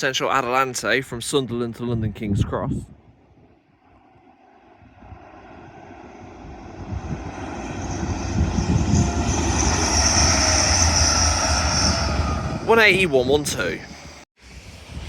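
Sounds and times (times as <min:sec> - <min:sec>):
high whine: 0:03.8 - 0:15.0
train approaching at speed: 0:04.0 - 0:15.0.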